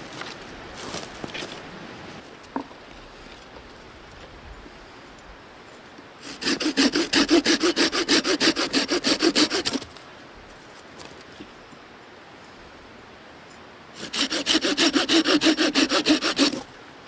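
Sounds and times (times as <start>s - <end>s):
hand saw cutting wood: 6.2s - 9.9s, 14.0s - 16.7s.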